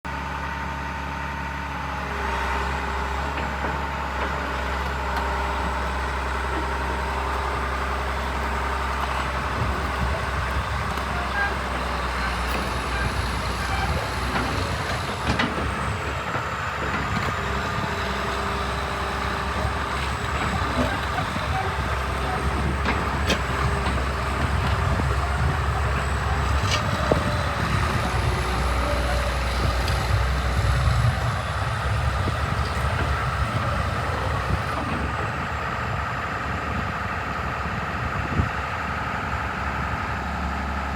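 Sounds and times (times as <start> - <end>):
excavator diesel engine rumbling: 0.0 - 40.9.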